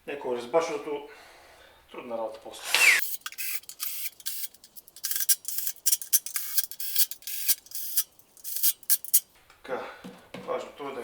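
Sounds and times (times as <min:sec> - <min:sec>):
metal threads rasping: 0:02.7 - 0:09.3.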